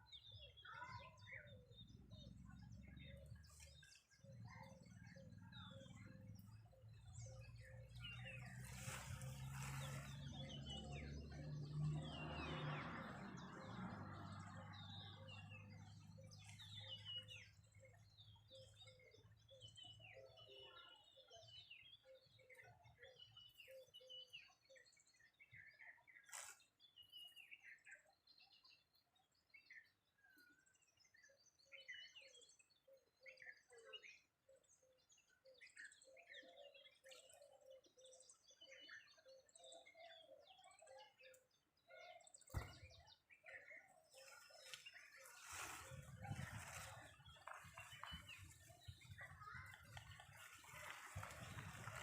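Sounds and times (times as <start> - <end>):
birds chirping and calling: 0.0 - 13.8, 35.1 - 52.0.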